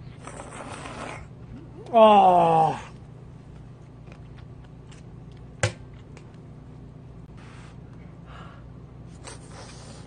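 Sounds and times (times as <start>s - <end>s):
low steady hum: 0.0s - 10.0s
soft breathy puffs: 7.4s - 10.0s.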